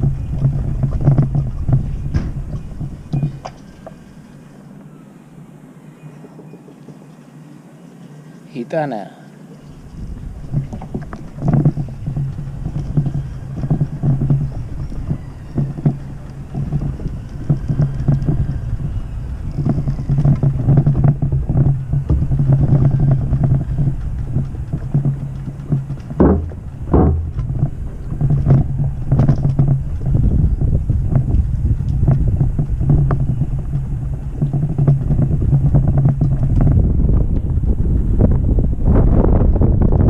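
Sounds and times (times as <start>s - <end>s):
engine droning: 0.0s - 40.0s
short knocks: 10.5s - 36.8s.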